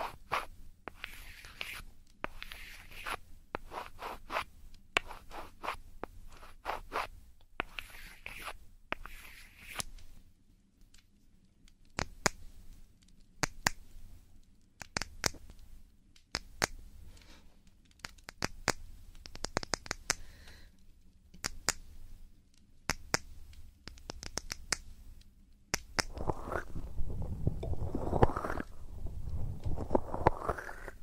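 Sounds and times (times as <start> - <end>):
rubbing and scratching microphone: 0.0 - 9.8, 26.0 - 31.0.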